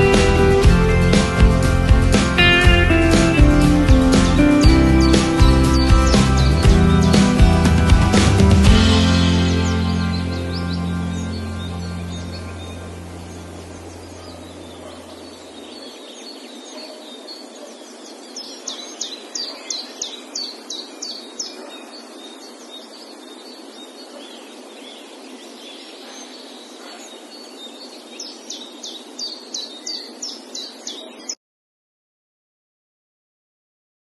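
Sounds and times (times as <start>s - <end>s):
bird chirping: 4.3s - 7.8s, 9.1s - 31.4s
outdoor ambience hiss: 9.0s - 31.4s.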